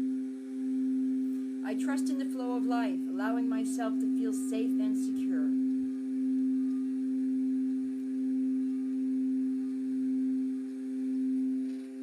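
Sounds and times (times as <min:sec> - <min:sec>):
singing bowl ringing: 0:00.0 - 0:01.6, 0:02.5 - 0:12.0.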